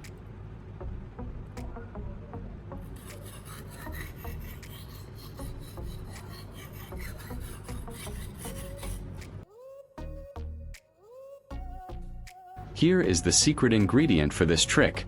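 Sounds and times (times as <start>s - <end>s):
background music: 0.0s - 15.0s
knife scraping on whetstone: 3.0s - 9.2s.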